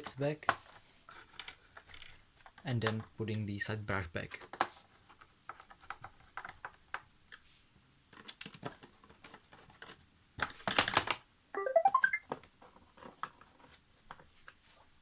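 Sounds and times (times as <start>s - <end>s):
plastic parts clicking and rattling: 8.1s - 11.2s
rising electronic tones: 11.6s - 12.2s.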